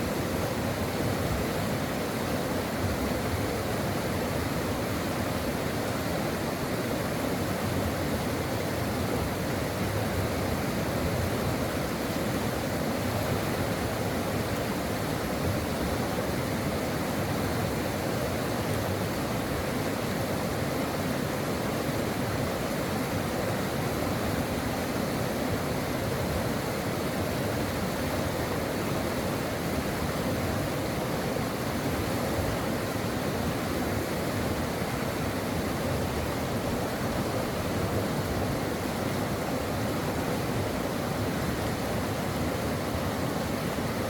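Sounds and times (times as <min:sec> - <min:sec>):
stream water rushing: 0:00.0 - 0:44.0.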